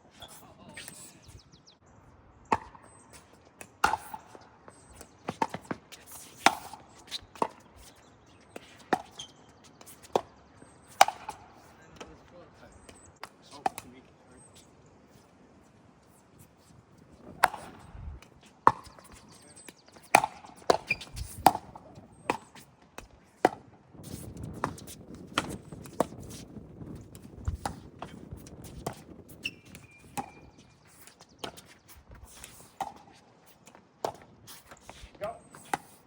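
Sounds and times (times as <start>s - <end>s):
paddles striking pickleball: 2.5s - 14.7s, 16.4s - 36.0s
wind rumble on microphone: 17.2s - 18.2s, 21.0s - 21.7s, 23.9s - 30.6s
short high squeak: 29.4s - 30.1s.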